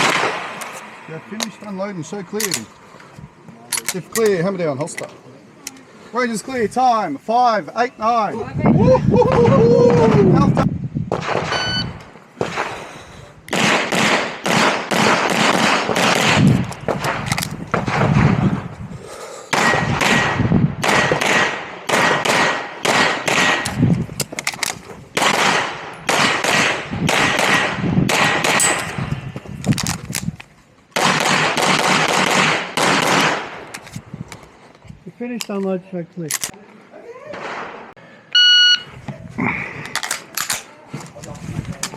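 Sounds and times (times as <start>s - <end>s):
pistol shots: 0.0s - 0.8s, 13.5s - 18.4s, 19.5s - 23.8s, 25.2s - 29.0s, 31.0s - 33.6s.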